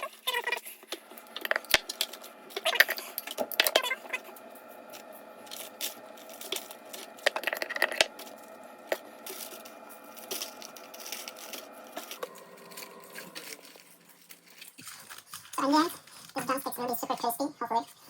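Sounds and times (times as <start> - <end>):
steady hum: 0.8 - 15.9
light crinkling: 8.0 - 18.0.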